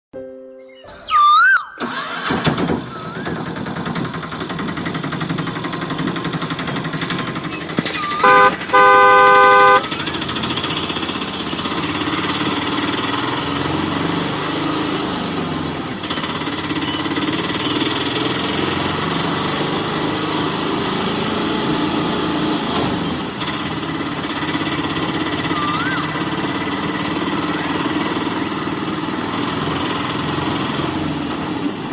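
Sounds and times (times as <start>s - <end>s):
vehicle engine running: 2.0s - 31.9s
car horn honking: 8.0s - 10.2s.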